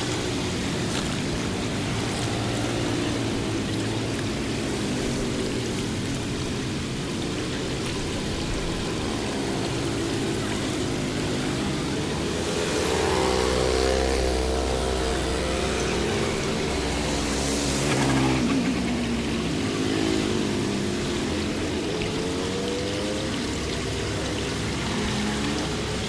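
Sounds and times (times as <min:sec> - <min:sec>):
motor vehicle engines running: 0:00.0 - 0:26.0.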